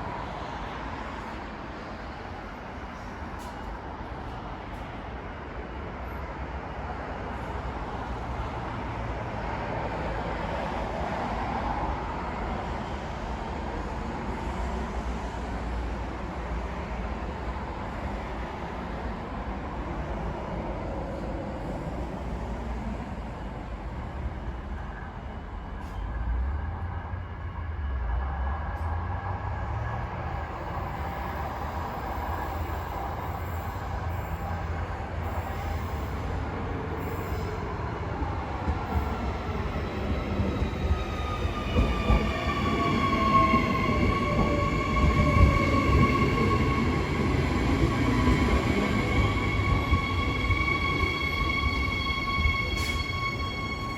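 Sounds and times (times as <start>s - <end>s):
passenger train passing: 0.0s - 53.9s.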